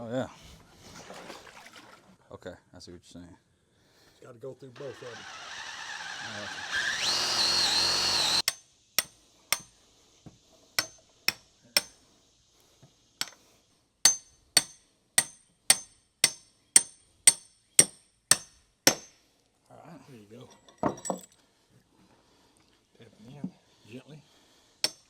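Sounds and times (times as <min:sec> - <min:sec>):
power drill whining: 0:04.8 - 0:08.5
hammer blows on metal: 0:14.0 - 0:19.2.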